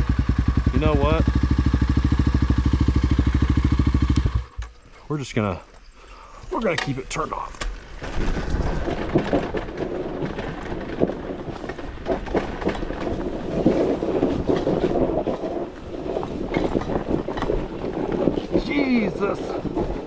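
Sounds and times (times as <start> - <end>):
bike clicks and knocks: 6.6 - 18.8
tyres crunching over loose rock: 6.6 - 20.0.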